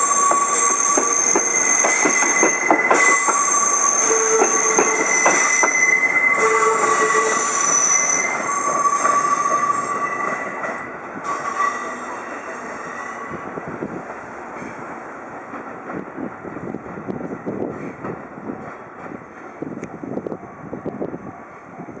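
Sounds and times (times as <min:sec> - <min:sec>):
train wheels squealing: 0:00.0 - 0:13.6.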